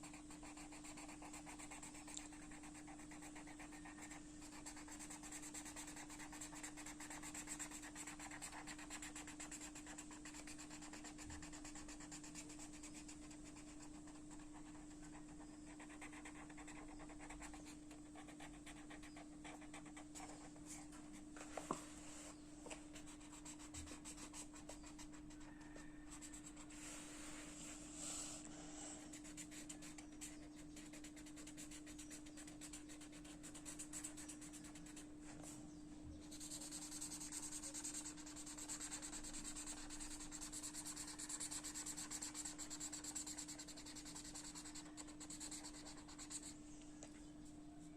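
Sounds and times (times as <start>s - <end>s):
colouring strokes scratching on paper: 0.0s - 20.7s, 23.0s - 35.1s, 36.2s - 46.6s
steady low hum: 11.2s - 47.9s.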